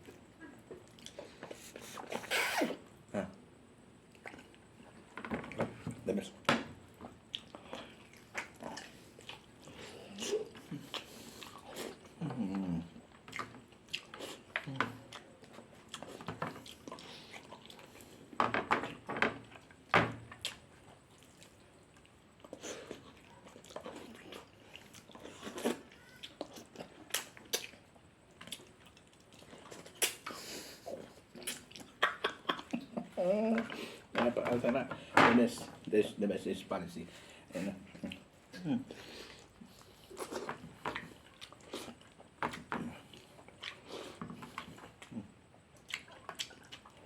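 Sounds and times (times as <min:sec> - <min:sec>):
person chewing and lip-smacking: 0:00.0 - 0:02.7, 0:07.3 - 0:18.1, 0:19.4 - 0:33.0, 0:39.3 - 0:47.0.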